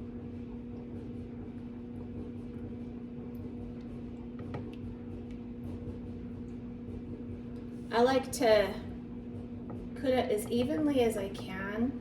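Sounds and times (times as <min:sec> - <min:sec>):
clothes dryer humming: 0:00.0 - 0:12.0.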